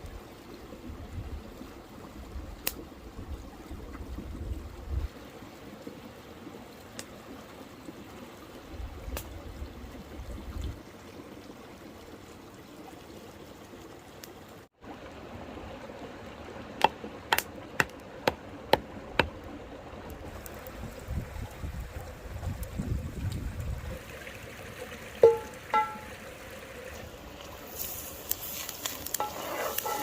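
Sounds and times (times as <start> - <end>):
river flowing: 23.9 - 30.0.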